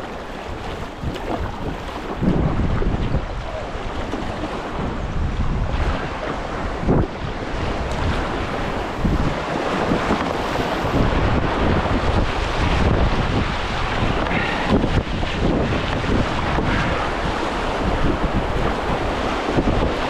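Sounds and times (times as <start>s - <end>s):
wind buffeting microphone: 0.0s - 20.0s
river whitewater rushing: 5.9s - 20.0s.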